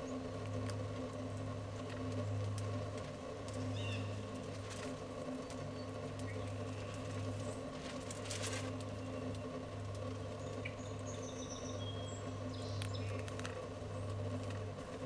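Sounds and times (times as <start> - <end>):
steady low hum: 0.0 - 15.0
scratchy rustle: 6.8 - 9.0.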